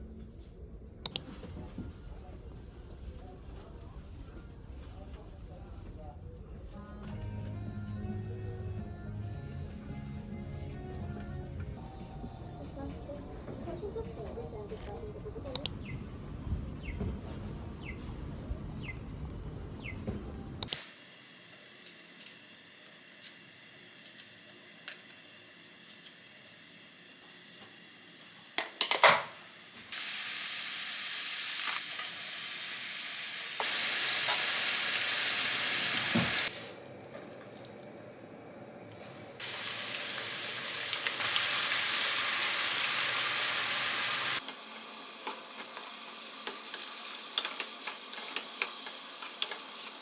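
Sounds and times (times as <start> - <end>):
food sizzling in a frying pan: 28.9 - 36.7, 39.4 - 50.0.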